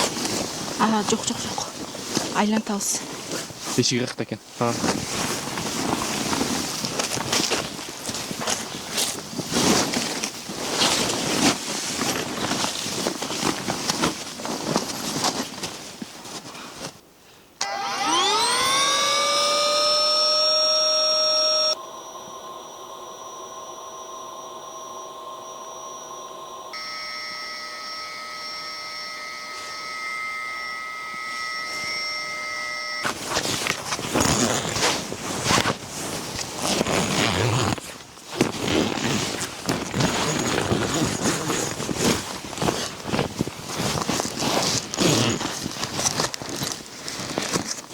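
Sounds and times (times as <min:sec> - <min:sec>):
rustling and scraping: 0:00.0 - 0:17.1, 0:28.1 - 0:47.9
electric motor whine: 0:17.6 - 0:34.6.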